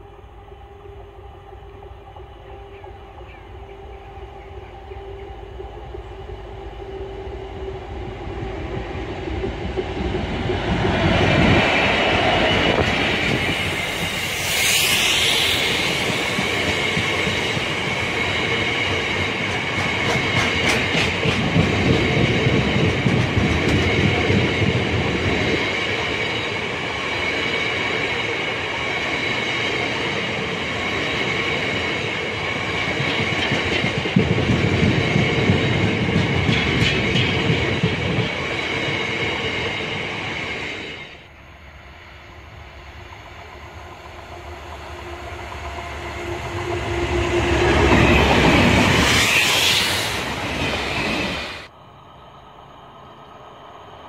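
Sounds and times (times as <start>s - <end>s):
diesel locomotive passing: 0.0s - 54.0s
high whine from wheels: 5.5s - 20.3s, 38.4s - 54.0s
wheels clacking on rail: 8.5s - 41.2s.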